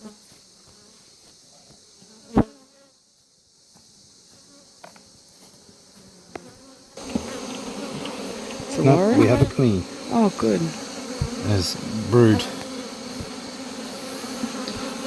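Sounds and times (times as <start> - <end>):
bees buzzing: 7.0 - 15.0.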